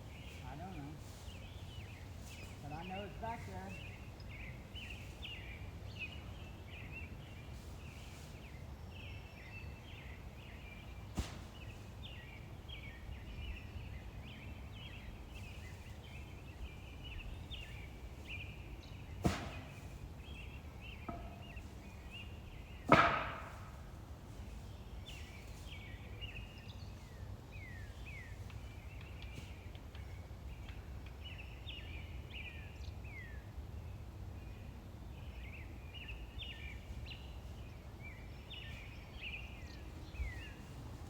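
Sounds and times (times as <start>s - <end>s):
sharp ringing knocks: 22.9s - 23.8s.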